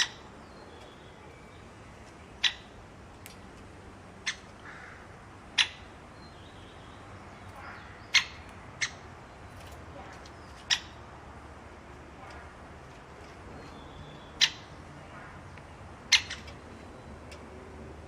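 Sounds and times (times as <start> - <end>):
bird chirping: 0.0 - 2.8, 5.6 - 11.2, 13.2 - 17.4
steady background hiss: 0.0 - 18.0.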